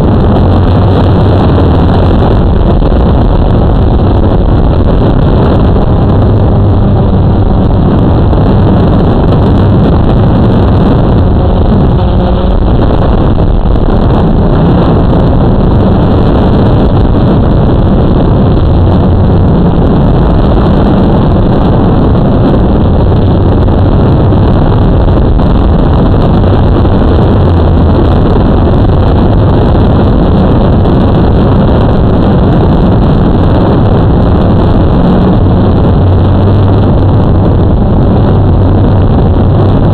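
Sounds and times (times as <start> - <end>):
wind buffeting microphone: 0.0 - 39.9
quadcopter motors and propellers: 2.0 - 23.3.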